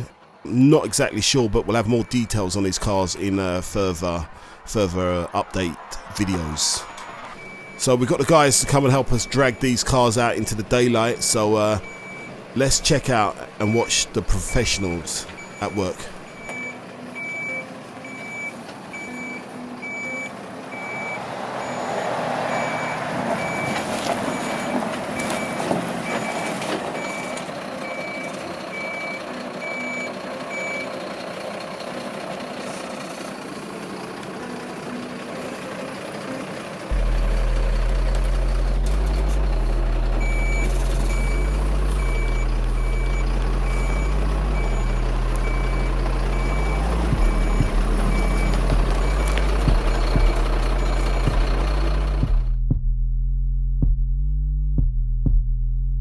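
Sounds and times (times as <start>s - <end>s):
reversing alarm beeping: 0.0s - 33.5s, 34.4s - 52.4s
engine and working noise: 0.0s - 52.4s
loud low bass line: 36.9s - 56.0s.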